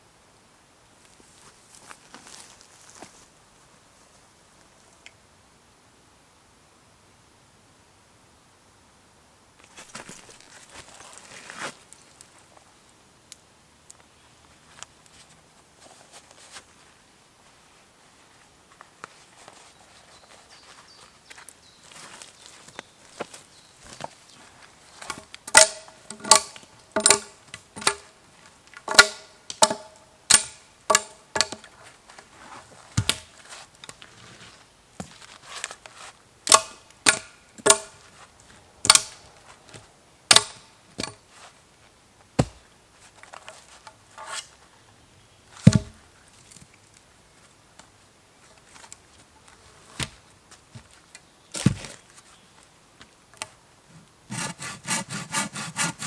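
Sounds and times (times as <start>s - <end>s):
wood being chopped: 25.5s - 28.0s, 28.9s - 31.6s, 33.0s - 33.3s, 36.5s - 37.9s, 38.9s - 39.2s, 40.3s - 41.2s, 42.4s - 42.6s, 45.6s - 46.0s.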